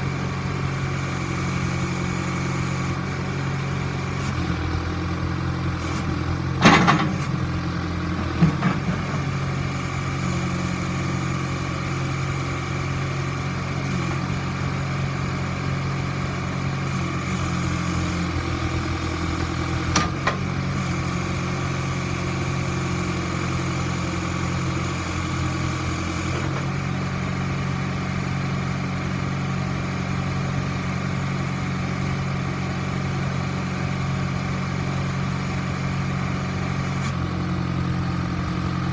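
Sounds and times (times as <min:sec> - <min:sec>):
diesel engine idling: 0:00.0 - 0:16.8, 0:26.7 - 0:38.9
sharp metallic clunks: 0:06.6 - 0:07.4.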